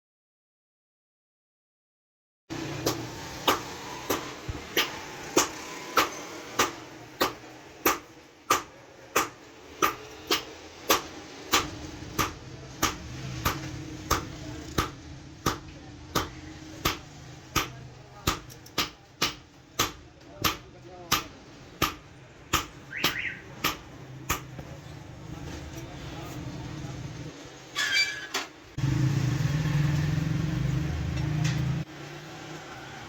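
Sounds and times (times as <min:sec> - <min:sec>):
hammer striking metal on anvil: 0:02.8 - 0:24.6.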